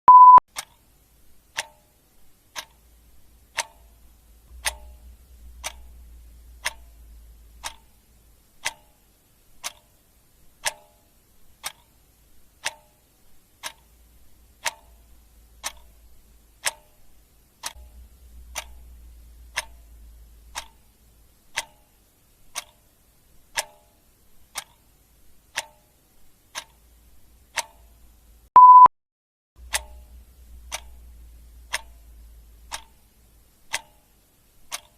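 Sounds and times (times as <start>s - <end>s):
short electronic beep: 0.0s - 0.4s, 28.6s - 28.9s
clock ticking: 0.1s - 28.7s, 29.6s - 34.9s.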